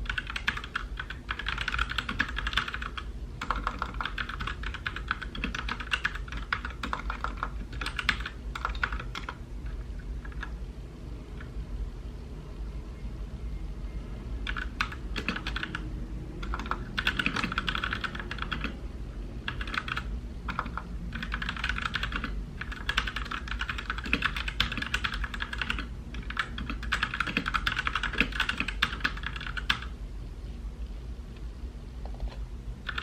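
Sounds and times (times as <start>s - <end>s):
mechanical keyboard typing: 0.0s - 10.6s, 14.4s - 18.8s, 19.4s - 29.9s
steady low hum: 0.0s - 33.0s.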